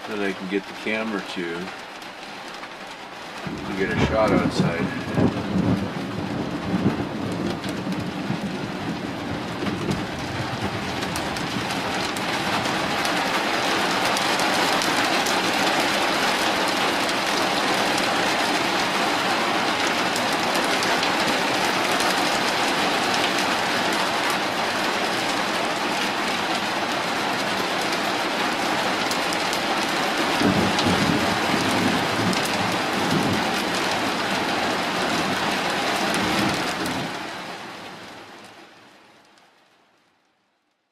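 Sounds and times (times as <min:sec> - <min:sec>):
heavy rain pouring: 0:00.0 - 0:40.5
low rumble of thunder: 0:03.4 - 0:13.0, 0:30.4 - 0:33.6.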